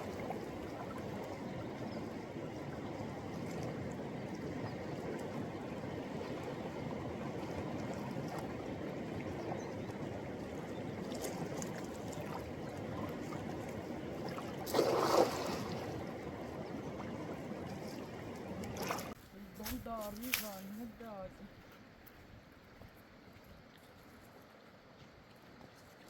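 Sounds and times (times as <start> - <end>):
water rushing around a boat: 0.0 - 19.2.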